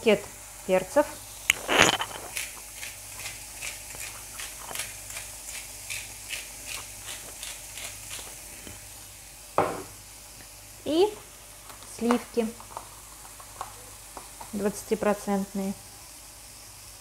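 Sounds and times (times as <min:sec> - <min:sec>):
mushrooms sizzling in oil: 0:00.0 - 0:17.0
pepper grinder crunching: 0:01.5 - 0:08.5.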